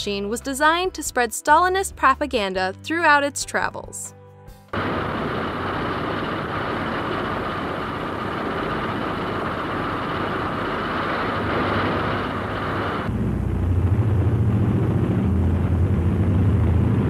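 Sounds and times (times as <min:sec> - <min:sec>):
propeller aircraft engines droning: 0:04.8 - 0:17.0.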